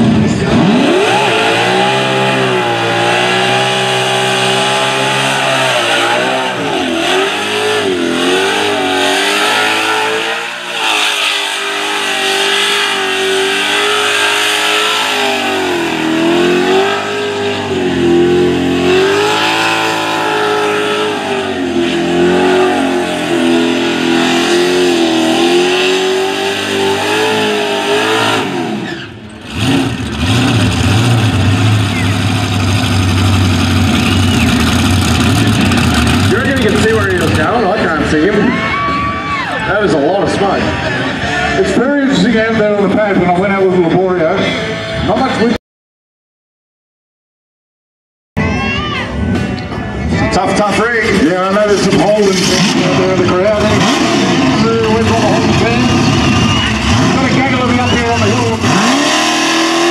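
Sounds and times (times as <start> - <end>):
car engine revving high: 0.0 - 38.4, 50.6 - 59.9.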